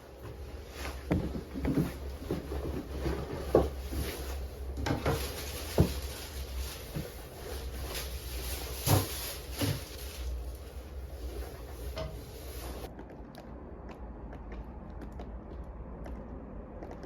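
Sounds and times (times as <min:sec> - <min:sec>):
objects knocking and clunking: 0:01.0 - 0:06.2, 0:11.6 - 0:12.9
steady low rumble: 0:04.3 - 0:17.0.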